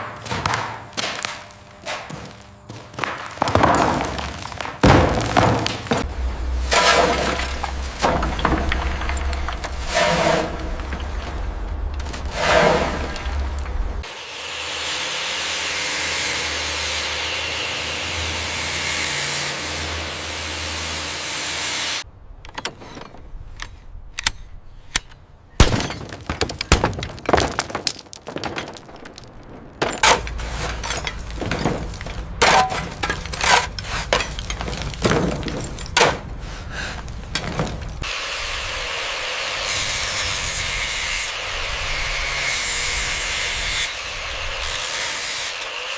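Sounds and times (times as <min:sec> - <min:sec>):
cracks and knocks of breaking: 0:00.2 - 0:06.1, 0:06.7 - 0:12.3, 0:25.6 - 0:36.3, 0:37.0 - 0:38.1.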